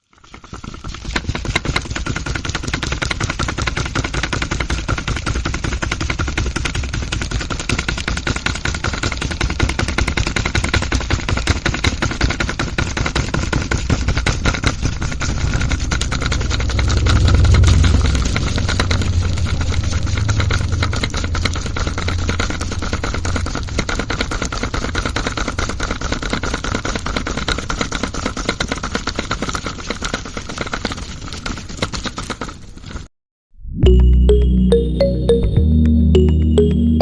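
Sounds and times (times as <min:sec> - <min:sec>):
small electric motor rattling: 0:00.0 - 0:32.8
low hum: 0:16.1 - 0:20.3, 0:33.6 - 0:37.0.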